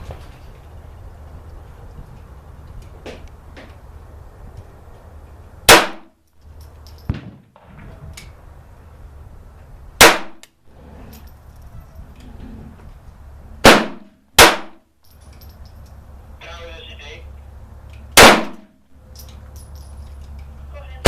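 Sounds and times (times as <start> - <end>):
pistol shots: 5.7 - 6.1, 10.0 - 10.4, 13.6 - 14.8, 18.2 - 18.8.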